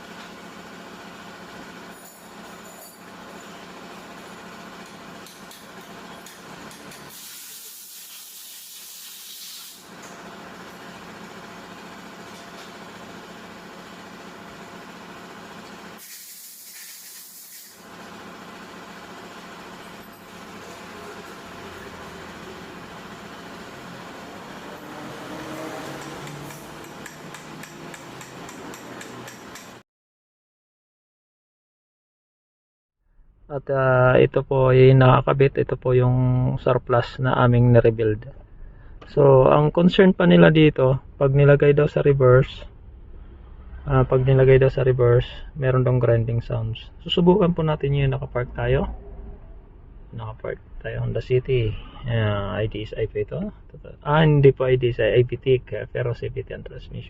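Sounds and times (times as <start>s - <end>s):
mechanical hum: 0.0s - 29.8s, 33.2s - 57.0s
hiss: 6.9s - 9.9s, 16.0s - 17.8s
steady hum: 34.2s - 57.0s.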